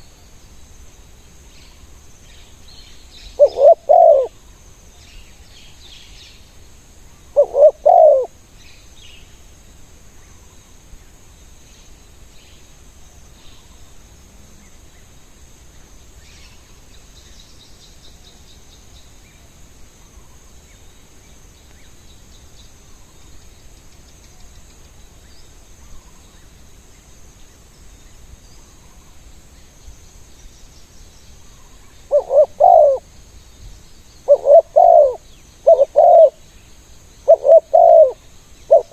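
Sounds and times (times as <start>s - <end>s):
small birds chirping: 1.6s - 9.4s, 20.1s - 38.9s
dove cooing: 3.4s - 4.4s, 7.3s - 8.3s, 32.1s - 33.0s, 34.3s - 36.4s, 37.2s - 38.9s.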